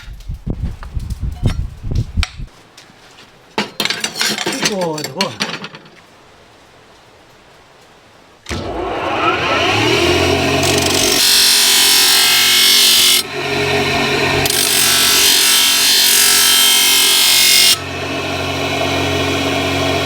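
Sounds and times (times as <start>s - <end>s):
power tool working metal: 8.5s - 20.0s
low machine hum: 13.2s - 15.4s, 17.8s - 20.0s.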